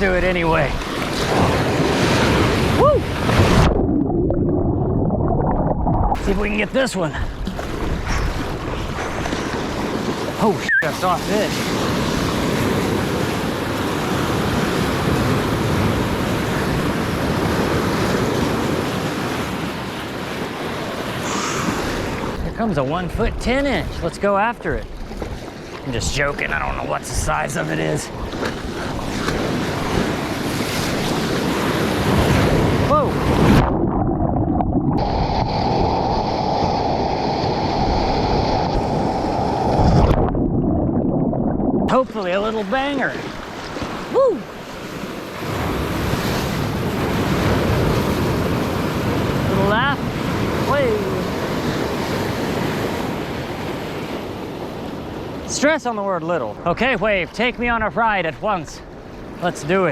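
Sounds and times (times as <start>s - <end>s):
wind on microphone: 0.0s - 6.6s, 7.2s - 22.6s, 28.1s - 41.9s
rushing water: 0.0s - 59.9s
small waves washing: 0.0s - 59.9s.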